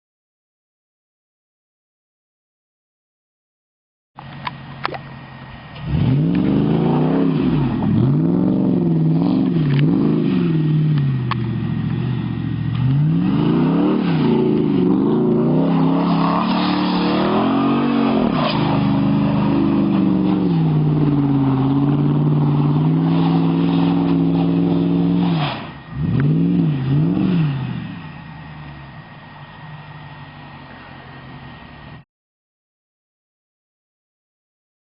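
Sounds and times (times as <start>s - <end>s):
car engine revving hard: 5.8s - 28.7s.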